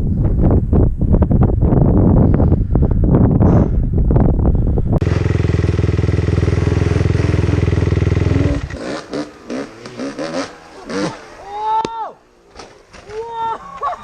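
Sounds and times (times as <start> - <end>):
wind noise: 0.0 - 9.9
dirt bike engine running: 0.1 - 13.0.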